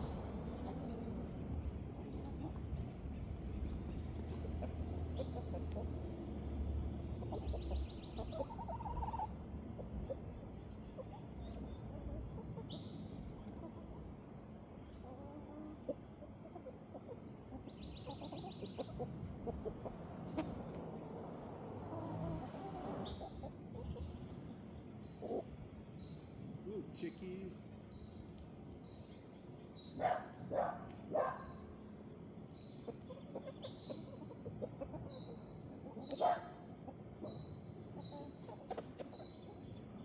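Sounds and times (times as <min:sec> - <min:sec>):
chickens clucking: 0:00.0 - 0:26.2, 0:28.3 - 0:40.0
outdoor background noise: 0:00.0 - 0:40.0.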